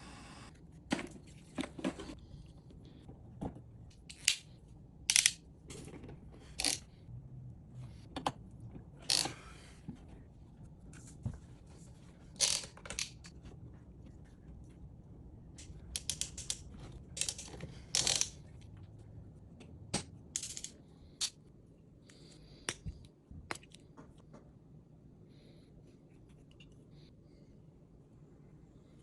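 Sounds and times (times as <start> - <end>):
tools and pipe fittings clicking: 4.1 - 5.4, 6.6 - 6.9, 9.0 - 9.4, 15.6 - 18.6.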